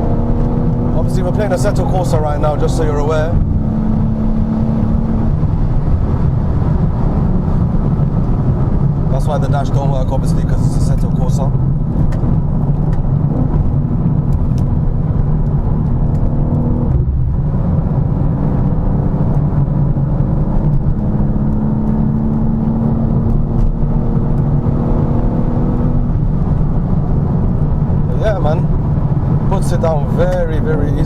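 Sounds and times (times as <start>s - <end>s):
car engine hum: 0.0s - 31.0s
tyre and road noise: 0.0s - 31.0s.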